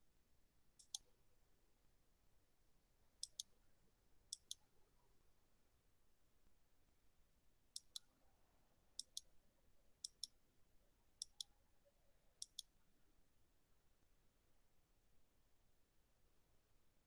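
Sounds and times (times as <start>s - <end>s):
faint double clicks: 0.8s - 1.1s, 3.2s - 3.5s, 4.3s - 4.6s, 7.8s - 8.1s, 9.0s - 9.3s, 10.0s - 10.4s, 11.2s - 11.5s, 12.4s - 12.7s.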